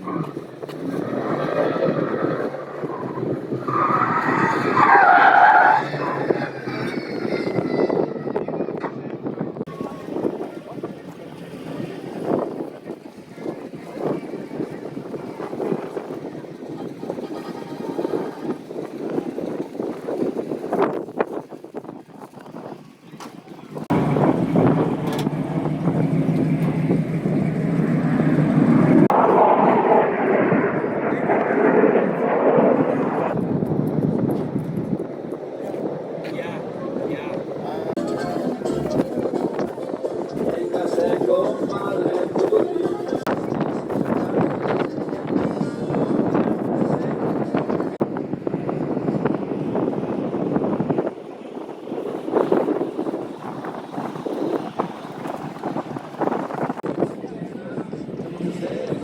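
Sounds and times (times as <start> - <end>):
tires squealing: 0.0 - 9.0
engine noise: 23.3 - 43.4
loud vehicle engine running: 23.9 - 30.0.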